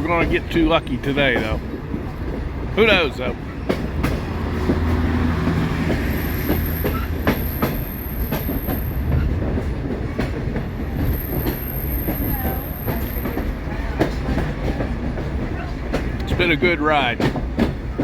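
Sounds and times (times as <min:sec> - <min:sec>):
diesel locomotive engine rumble: 0:00.0 - 0:18.0
wheels clicking over rails: 0:00.0 - 0:18.0
high-pitched wheel squeal: 0:06.0 - 0:09.4.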